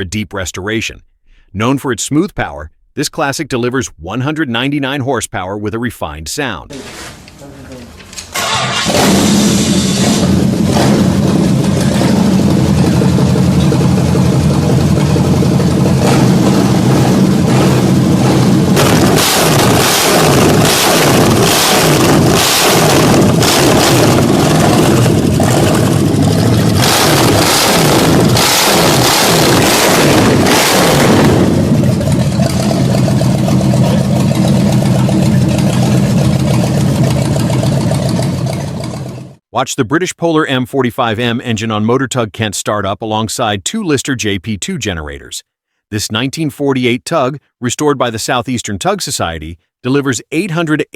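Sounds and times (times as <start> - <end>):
car engine running: 8.4 - 39.4.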